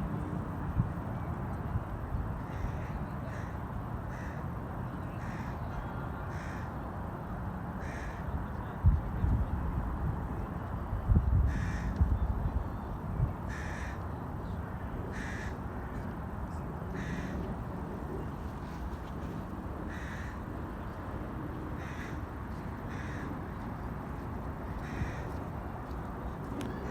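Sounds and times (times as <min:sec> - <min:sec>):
steady background noise: 0:00.0 - 0:26.9
crow cawing: 0:02.5 - 0:04.4, 0:05.2 - 0:05.6, 0:06.3 - 0:06.6, 0:07.8 - 0:08.2, 0:11.5 - 0:11.9, 0:13.5 - 0:14.0, 0:15.1 - 0:15.6, 0:17.0 - 0:17.4, 0:19.9 - 0:20.4, 0:21.8 - 0:22.2, 0:22.9 - 0:23.3, 0:24.8 - 0:25.4.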